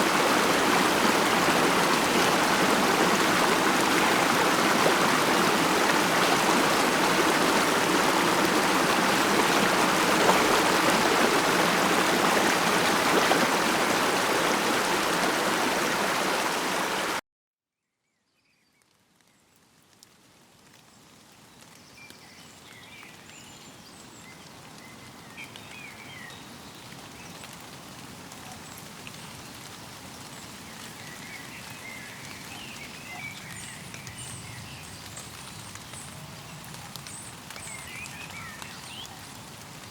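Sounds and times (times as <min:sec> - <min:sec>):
stream rushing: 0:00.0 - 0:17.2.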